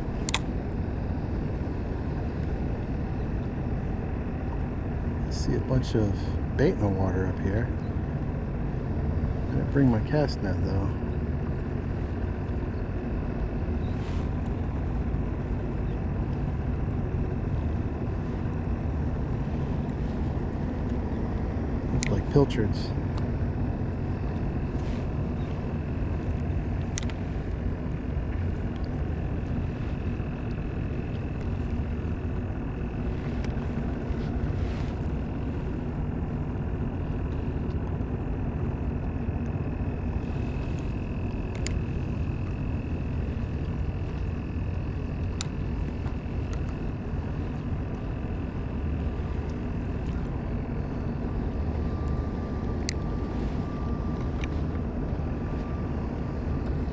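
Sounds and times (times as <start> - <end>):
boat motor rumbling: 0.0 - 56.9
faint clicks: 26.3 - 27.6, 40.5 - 42.6.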